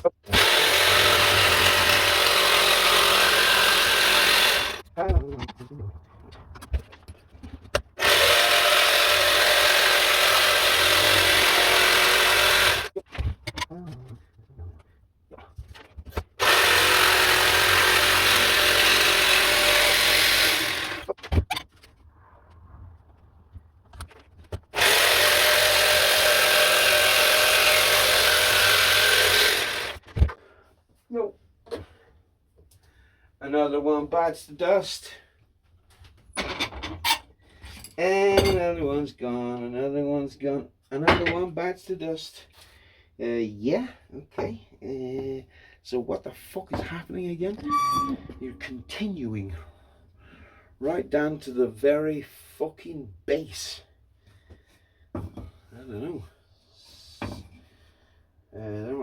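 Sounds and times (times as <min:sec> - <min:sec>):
electric power tool cutting wood: 0:00.3 - 0:04.8, 0:08.0 - 0:13.0, 0:16.4 - 0:21.1, 0:24.8 - 0:30.0.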